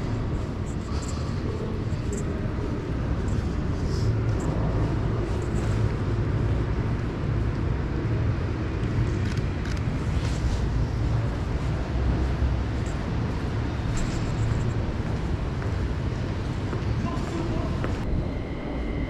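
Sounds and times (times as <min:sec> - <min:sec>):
low city ambience rumble: 0:00.0 - 0:19.0
faint clicks and clatters: 0:08.7 - 0:15.9.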